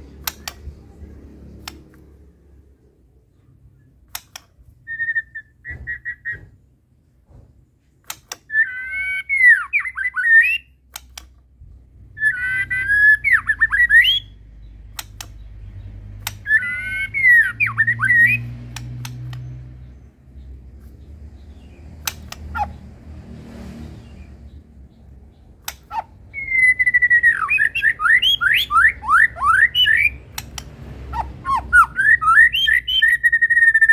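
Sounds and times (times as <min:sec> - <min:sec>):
sharp clicks: 0:00.0 - 0:02.4, 0:03.8 - 0:04.9, 0:08.0 - 0:08.6, 0:09.4 - 0:11.6, 0:13.4 - 0:22.9, 0:24.2 - 0:33.2
bird singing whistled phrases: 0:04.9 - 0:06.4, 0:08.5 - 0:10.7, 0:12.2 - 0:14.3, 0:16.4 - 0:18.5, 0:26.3 - 0:30.2, 0:31.4 - 0:33.9.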